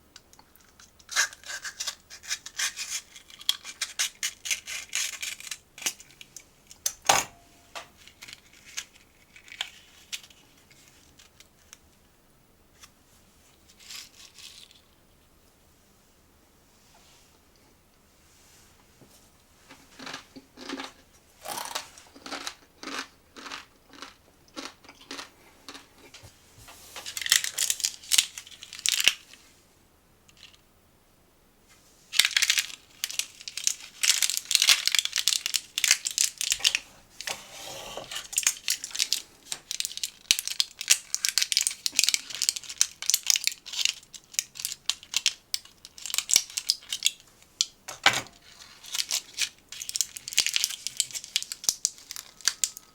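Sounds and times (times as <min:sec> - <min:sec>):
snack packaging crinkling: 0:00.6 - 0:07.0, 0:07.9 - 0:11.8, 0:13.7 - 0:15.0, 0:20.0 - 0:25.9, 0:27.0 - 0:29.3, 0:32.1 - 0:37.4, 0:38.0 - 0:47.8, 0:48.4 - 0:52.9.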